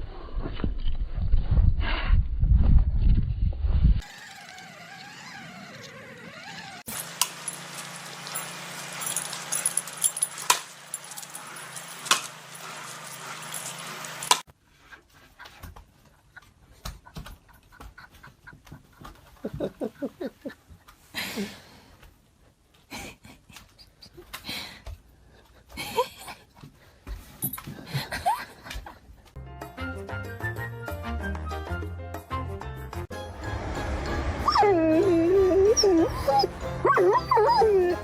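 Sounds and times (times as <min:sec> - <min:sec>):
dog whining: 0:34.4 - 0:38.0.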